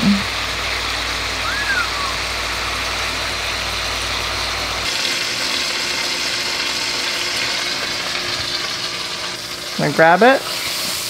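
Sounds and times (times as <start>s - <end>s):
fish sizzling in butter: 4.8s - 11.0s.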